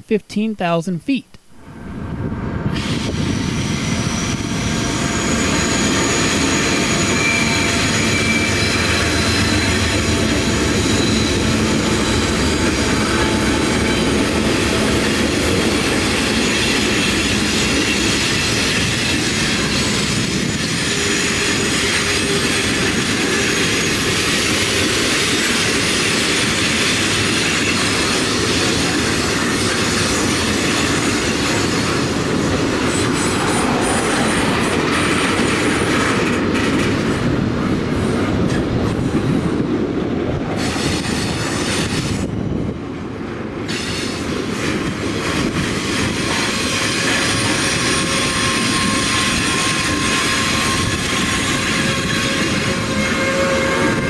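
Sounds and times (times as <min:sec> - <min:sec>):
diesel locomotives passing: 0:01.6 - 0:54.0
steel wheels rumbling on rail: 0:01.6 - 0:54.0
high wheel squeal: 0:02.8 - 0:14.2, 0:46.0 - 0:54.0.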